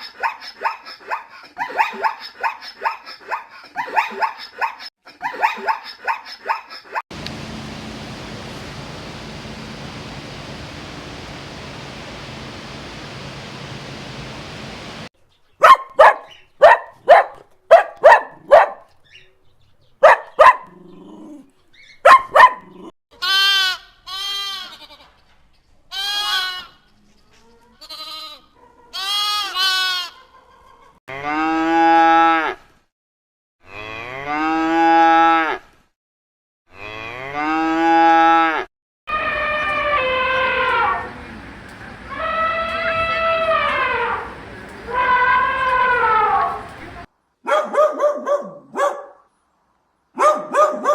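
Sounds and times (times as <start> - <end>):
steady hiss: 7.1 - 15.1, 39.2 - 47.1
sheep bleating: 39.1 - 47.1
short sharp animal calls: 39.1 - 47.1.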